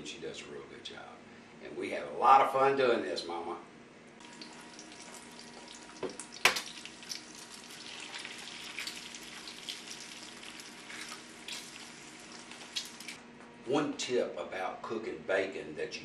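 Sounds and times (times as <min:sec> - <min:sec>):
egg and bacon sizzling: 0:04.2 - 0:13.2.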